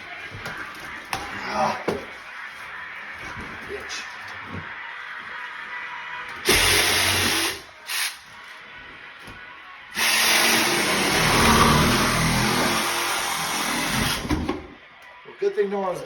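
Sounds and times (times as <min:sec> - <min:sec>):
power tool running in bursts: 0:10.0 - 0:14.2.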